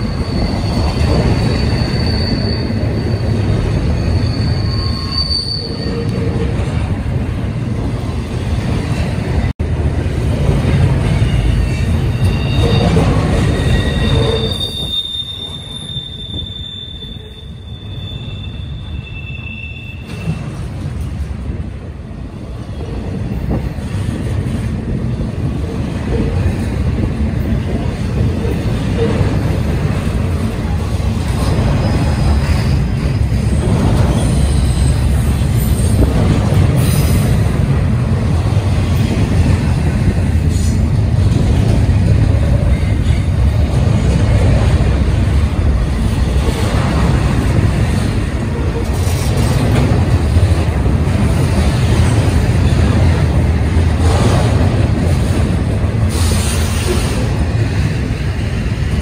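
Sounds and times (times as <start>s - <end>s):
wheels squealing: 0.0s - 6.9s, 11.0s - 20.7s
steel wheels rumbling on rail: 0.0s - 59.0s.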